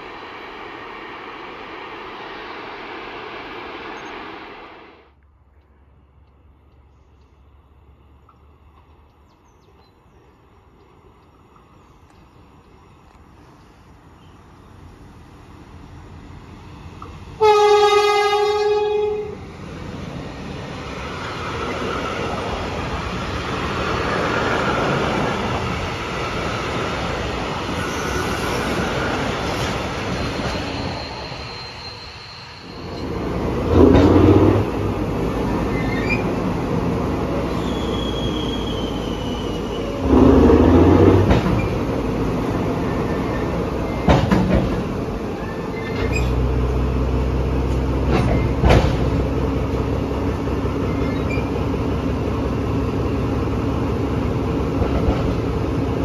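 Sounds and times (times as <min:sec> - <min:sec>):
train wheel rumble: 0:00.0 - 0:56.0
locomotive horn blast: 0:17.4 - 0:19.4
high wheel squeals: 0:27.7 - 0:33.3, 0:35.4 - 0:36.4, 0:37.4 - 0:40.2, 0:45.4 - 0:46.4, 0:50.8 - 0:51.6.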